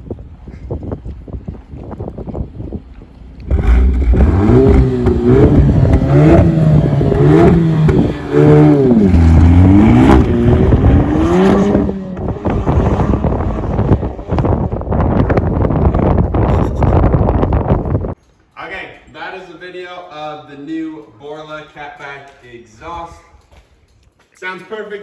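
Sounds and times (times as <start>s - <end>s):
car engine accelerating hard: 3.4s - 17.9s.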